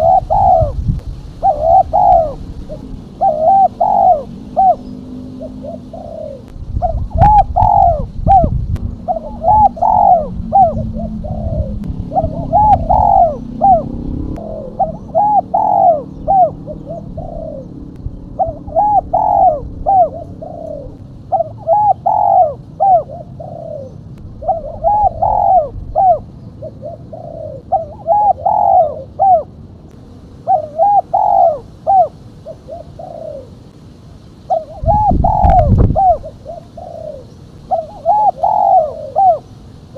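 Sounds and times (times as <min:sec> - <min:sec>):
dove cooing: 0:00.0 - 0:29.6, 0:30.4 - 0:33.7, 0:34.4 - 0:39.9
low rumble: 0:04.2 - 0:21.2.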